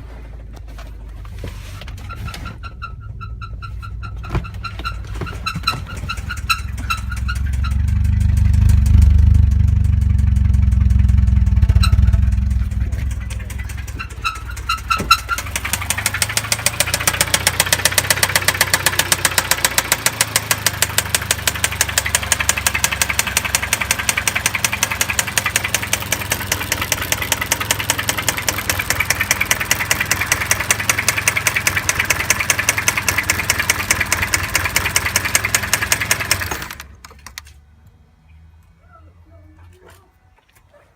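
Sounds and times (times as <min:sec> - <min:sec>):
car engine running: 0:01.1 - 0:37.5
rapid engine knock: 0:05.3 - 0:37.0.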